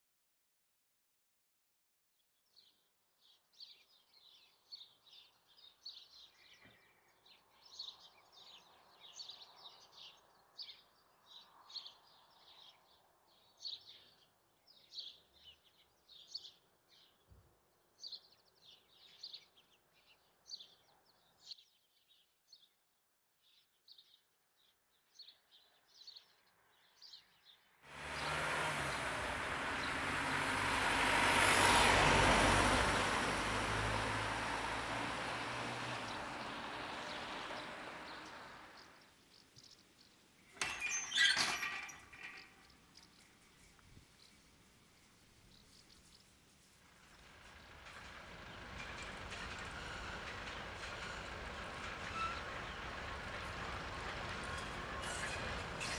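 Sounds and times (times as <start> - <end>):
birds chirping: 23.4 - 55.9
diesel locomotive engine: 27.9 - 39.0, 42.6 - 55.9.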